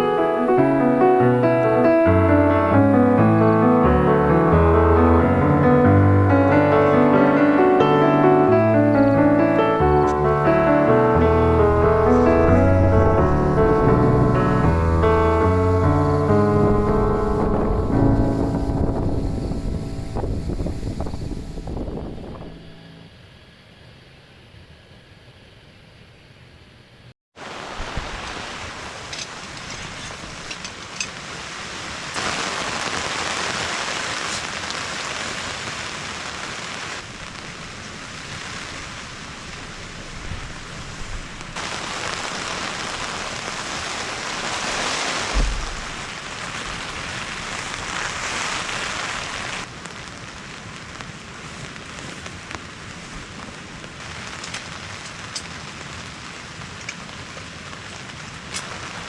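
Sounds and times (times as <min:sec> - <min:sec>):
heavy rain falling: 0:00.0 - 0:22.8, 0:27.4 - 0:59.0
low thumps: 0:02.0 - 0:23.0, 0:45.3 - 0:46.9.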